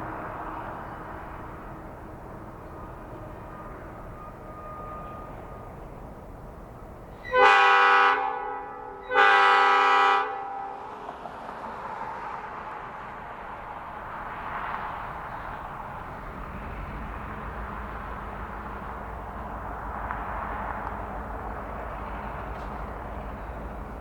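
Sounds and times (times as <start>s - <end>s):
locomotive air horn blasts: 4.2s - 5.7s, 7.2s - 10.9s.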